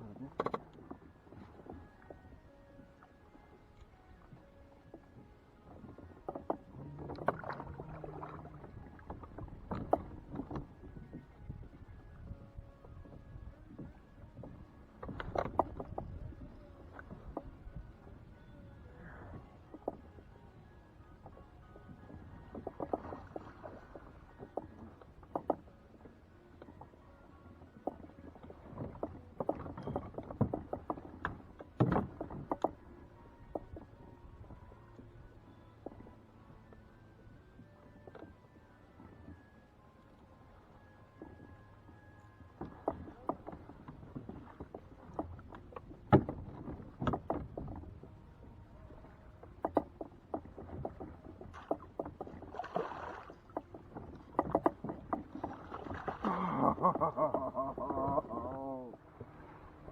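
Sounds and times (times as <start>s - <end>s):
gear knocking on kayak: 9.0s - 11.0s, 14.9s - 16.3s, 28.7s - 32.9s, 42.6s - 48.0s, 49.5s - 52.7s, 53.3s - 57.6s
knocks against kayak hull: 46.1s - 47.4s.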